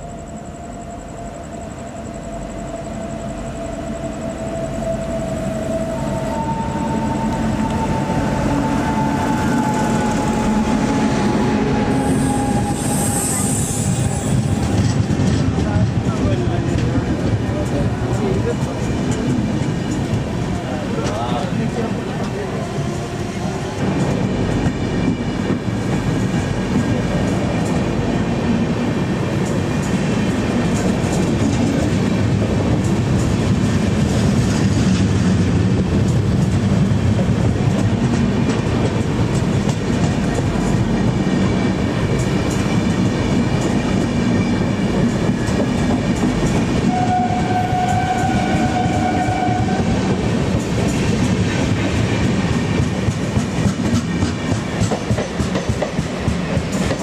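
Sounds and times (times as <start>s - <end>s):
train rumbling at speed: 0.0s - 57.0s
wheels clicking over rail joints: 49.6s - 57.0s.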